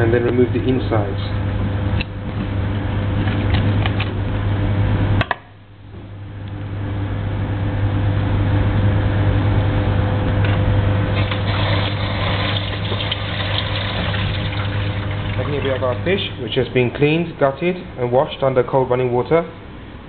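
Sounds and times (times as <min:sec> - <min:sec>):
steady low hum: 0:00.0 - 0:20.0
tap water running and splashing: 0:11.2 - 0:16.1.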